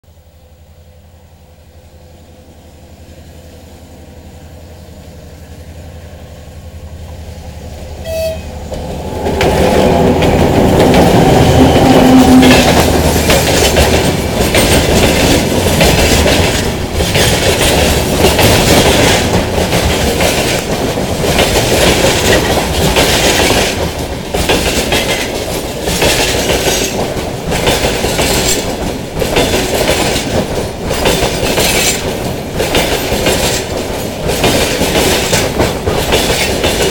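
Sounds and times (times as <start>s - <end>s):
freight train rumbling: 0.0s - 36.9s
train horn blast: 8.0s - 8.7s, 11.4s - 12.9s
wagons clickety-clack over rails: 8.7s - 36.9s.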